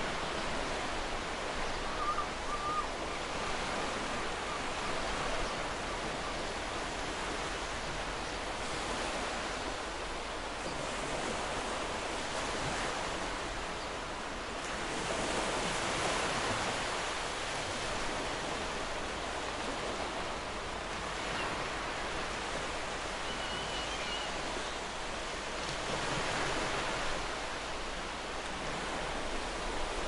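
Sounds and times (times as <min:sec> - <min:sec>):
sea waves washing onto shore: 0:00.0 - 0:30.0.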